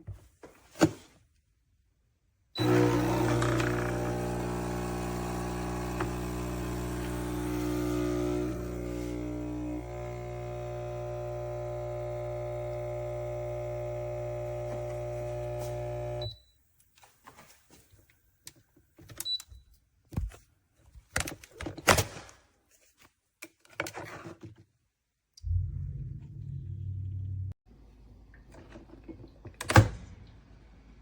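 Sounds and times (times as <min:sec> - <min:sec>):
espresso machine humming: 0:02.6 - 0:16.3.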